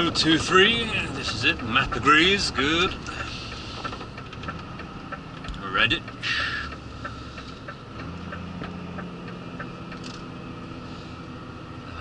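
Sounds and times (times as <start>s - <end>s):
diesel engine running: 0.0s - 12.0s
indicator ticking: 4.5s - 10.5s.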